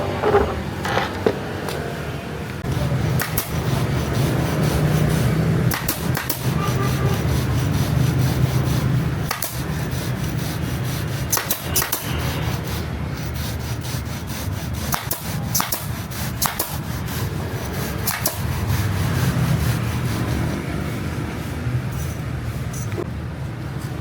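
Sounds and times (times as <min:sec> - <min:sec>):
rubbing and scraping on a seat: 0:06.4 - 0:23.1.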